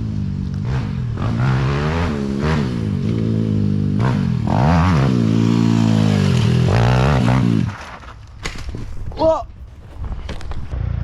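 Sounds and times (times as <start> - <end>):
pitbike engine revving: 0.6 - 7.8.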